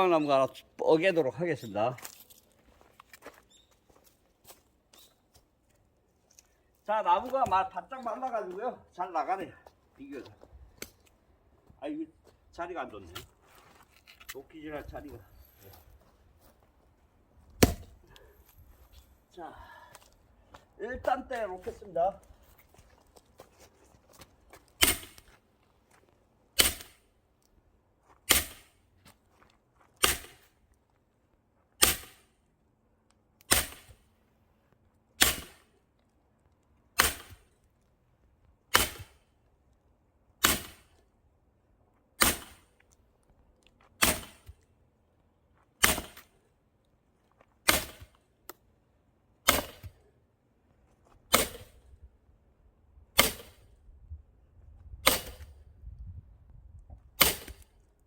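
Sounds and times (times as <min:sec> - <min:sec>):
axe chopping wood: 0:17.6 - 0:18.0, 0:24.8 - 0:25.3, 0:26.6 - 0:27.0, 0:28.3 - 0:28.7, 0:30.0 - 0:30.4, 0:31.8 - 0:32.2, 0:33.5 - 0:34.0, 0:35.2 - 0:35.7, 0:37.0 - 0:37.5, 0:38.7 - 0:39.2, 0:40.4 - 0:40.9, 0:42.2 - 0:42.7, 0:44.0 - 0:44.6, 0:45.8 - 0:46.3, 0:47.6 - 0:48.2, 0:49.4 - 0:50.0, 0:51.3 - 0:51.8, 0:53.2 - 0:53.6, 0:55.0 - 0:55.5, 0:57.2 - 0:57.6.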